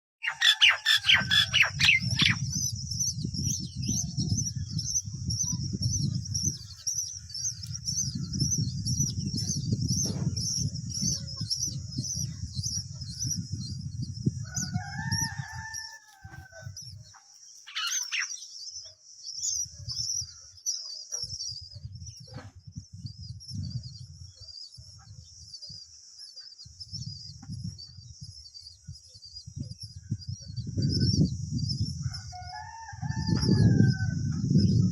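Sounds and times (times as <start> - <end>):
rooster crowing: 0.2 - 2.1, 14.4 - 16.8, 32.0 - 34.3
high-pitched chirping: 0.2 - 2.6, 17.7 - 18.6.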